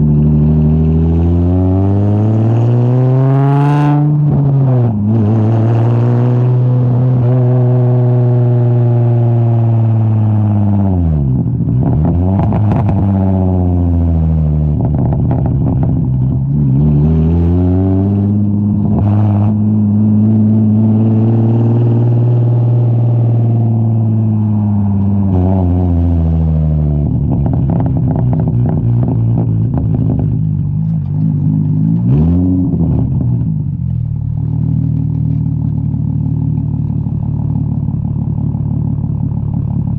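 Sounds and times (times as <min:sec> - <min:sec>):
straight-piped car engine revving: 0:00.0 - 0:37.9
exhaust crackling: 0:11.0 - 0:39.9.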